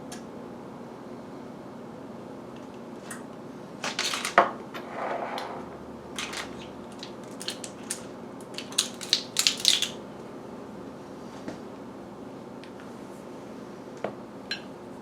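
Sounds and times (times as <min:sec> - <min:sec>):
utensils clinking against dishes: 0:14.5 - 0:14.7.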